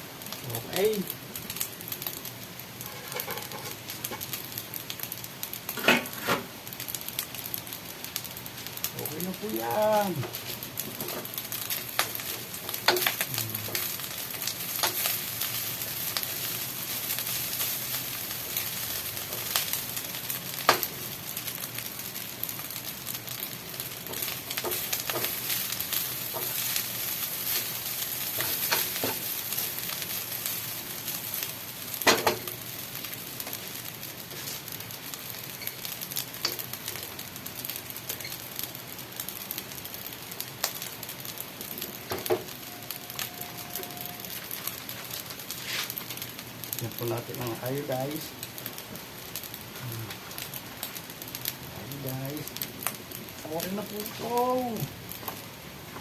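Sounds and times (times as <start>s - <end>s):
food sizzling in a pan: 0.0s - 56.0s.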